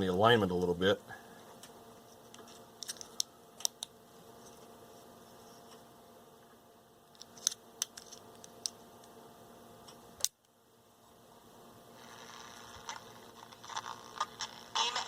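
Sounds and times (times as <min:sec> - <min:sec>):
faint hum: 0:00.0 - 0:15.0
radio hiss: 0:12.0 - 0:15.0.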